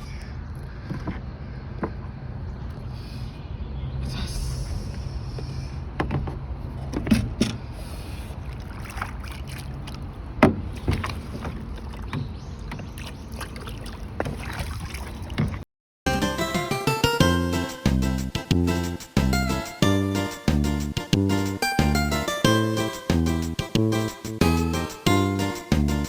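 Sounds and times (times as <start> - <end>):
knocks and clatter on a rowboat: 6.0 - 7.6, 10.4 - 15.6.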